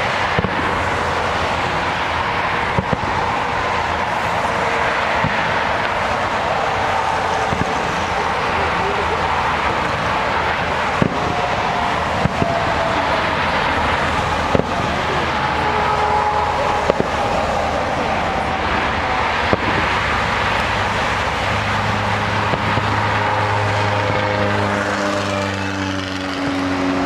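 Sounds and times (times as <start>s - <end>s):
distant fireworks popping: 0.0s - 26.7s
car engine idling: 0.0s - 27.0s
traffic noise: 0.0s - 27.0s.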